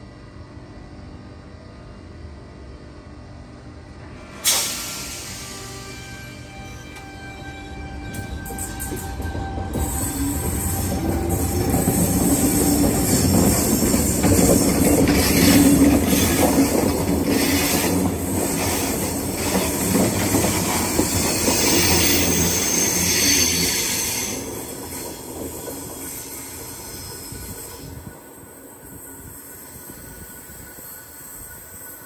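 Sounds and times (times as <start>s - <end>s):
train wheels squealing on rails: 4.2s - 32.0s
train wheels rumbling and clacking: 4.4s - 28.2s.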